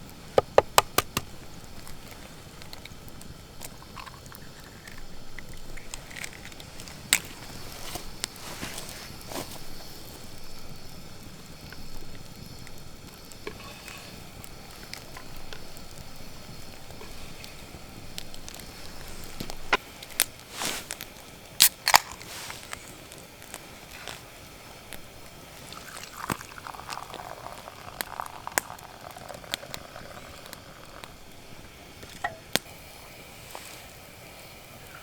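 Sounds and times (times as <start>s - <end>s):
campfire crackling: 0.0s - 35.0s
sharp pops: 0.3s - 8.4s, 16.5s - 24.2s, 32.0s - 32.8s.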